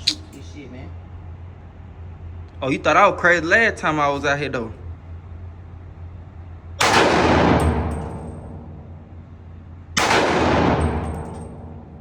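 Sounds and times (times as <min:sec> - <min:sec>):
gunshot echoing: 0:06.8 - 0:07.9, 0:10.0 - 0:11.2.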